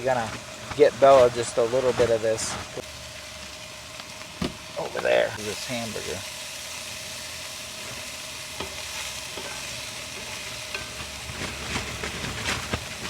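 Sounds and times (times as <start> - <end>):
meat sizzling in a frying pan: 0.0 - 13.0
utensil scraping a pan: 7.8 - 13.0.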